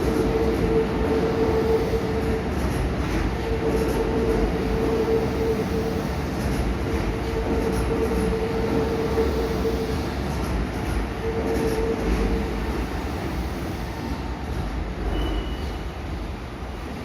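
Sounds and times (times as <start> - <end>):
train rail rumble: 0.0 - 17.0
train whine: 0.0 - 17.0.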